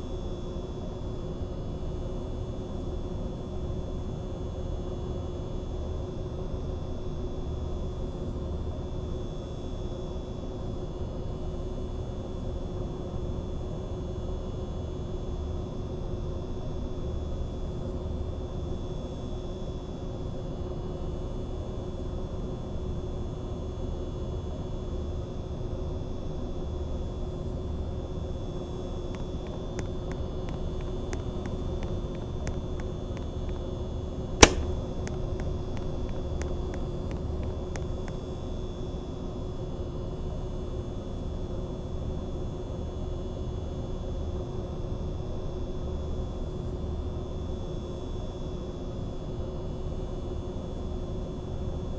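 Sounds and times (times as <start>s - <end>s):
sharp click: 34.4s - 35.2s.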